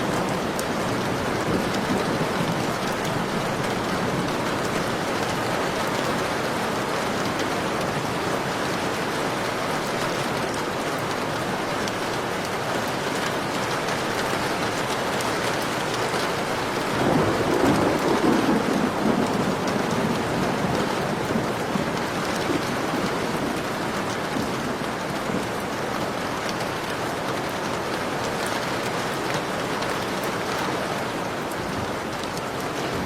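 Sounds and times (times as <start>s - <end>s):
heavy rain falling: 0.0s - 33.0s
thunder rolling: 16.7s - 23.7s.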